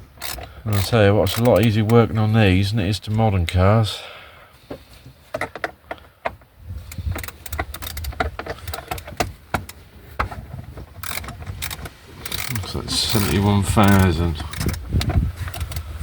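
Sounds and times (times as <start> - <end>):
tools clicking and rattling: 0.0 - 2.1, 6.8 - 15.9.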